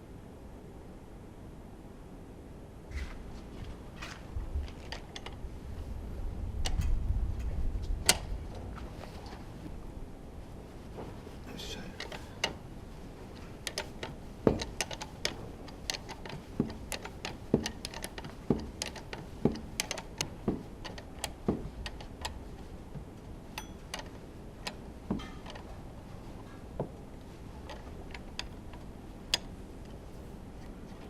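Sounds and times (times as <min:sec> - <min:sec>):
metallic clicks and knocks from tools: 0:23.6 - 0:25.8.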